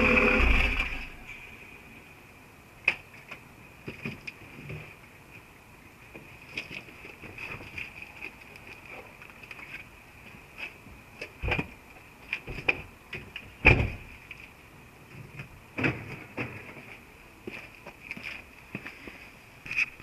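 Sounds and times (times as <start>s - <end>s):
exhaust rattling: 0.0s - 1.2s
steady high hum: 0.0s - 2.8s.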